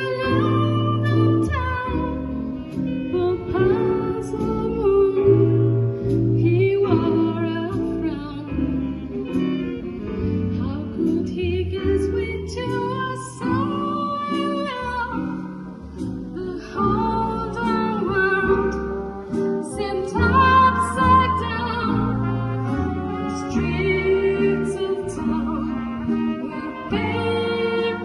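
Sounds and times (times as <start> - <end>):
jazz ensemble playing ballad: 0.0 - 28.0.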